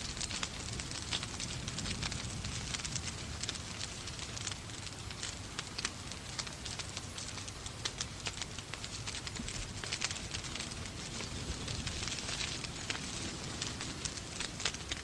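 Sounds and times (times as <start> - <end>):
rain hiss: 0.0 - 15.0
wood fire crackling and popping: 0.0 - 15.0.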